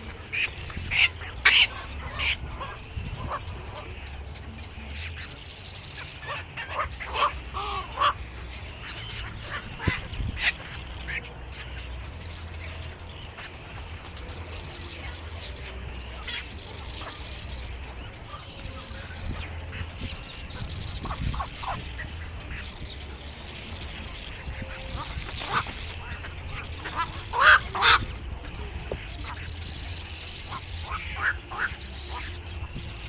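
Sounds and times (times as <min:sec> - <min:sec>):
birds calling: 0:00.0 - 0:33.0
steady low hum: 0:00.0 - 0:33.0.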